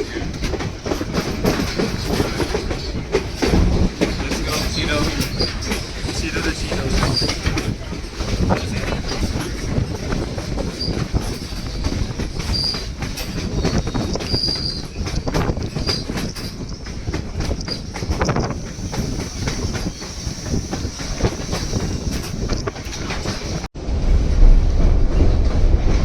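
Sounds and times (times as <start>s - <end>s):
train wheels clacking on rails: 0.0s - 23.7s
high wheel squeals: 13.6s - 15.0s.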